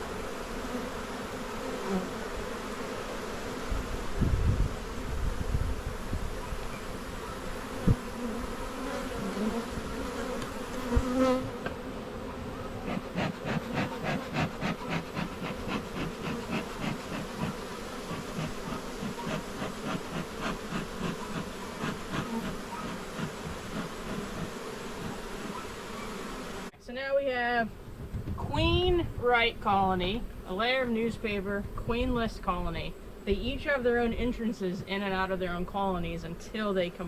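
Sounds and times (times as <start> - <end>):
honeybees buzzing: 0.0 - 28.6
rhythmic short puffs: 12.8 - 25.3.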